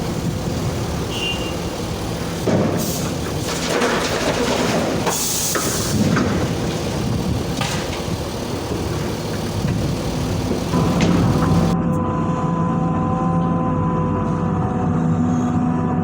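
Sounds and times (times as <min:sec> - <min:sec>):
excavator diesel engine: 0:00.0 - 0:16.0
falling dirt: 0:02.4 - 0:11.8.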